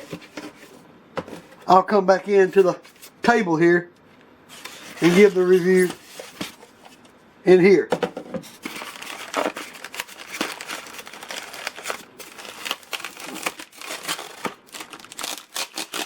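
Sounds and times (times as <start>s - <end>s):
packaging crinkling and rustling: 4.5s - 7.0s, 8.4s - 16.0s.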